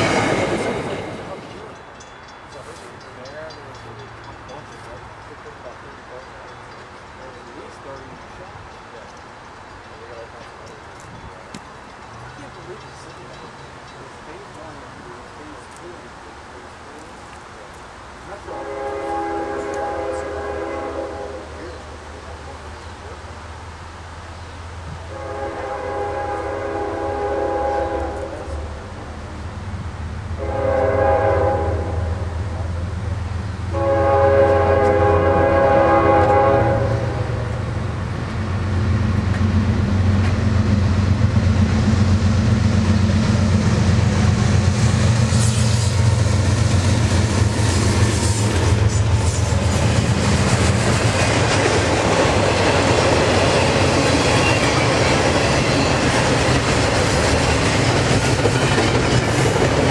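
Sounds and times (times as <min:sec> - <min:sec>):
freight cars clickety-clack: 0:00.0 - 0:17.1, 0:37.7 - 0:59.9
locomotive engines droning: 0:00.0 - 0:59.9
multi-tone locomotive horn: 0:18.4 - 0:21.6, 0:25.1 - 0:28.5, 0:30.4 - 0:32.4, 0:33.7 - 0:37.6.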